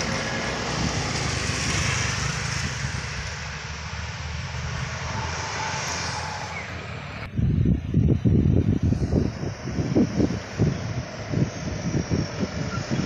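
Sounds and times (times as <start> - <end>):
heavy vehicle engine: 0.0 - 13.0
tyre and road noise: 0.0 - 13.0.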